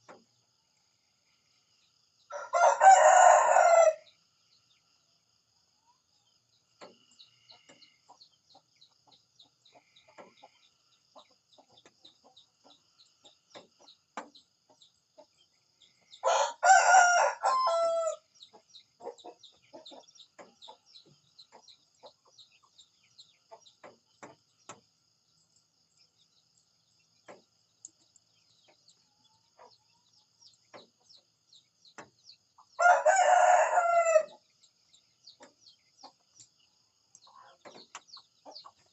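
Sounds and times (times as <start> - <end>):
faint chirps: 0.0 - 38.9
rooster crowing: 2.3 - 4.1, 16.2 - 18.2, 32.8 - 34.4.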